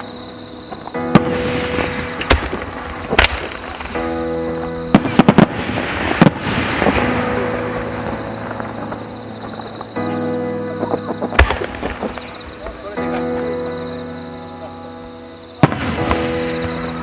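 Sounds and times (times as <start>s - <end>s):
background music: 0.0s - 17.0s
firework crackling: 0.0s - 17.0s
firework shells bursting: 0.8s - 10.1s, 11.0s - 13.6s.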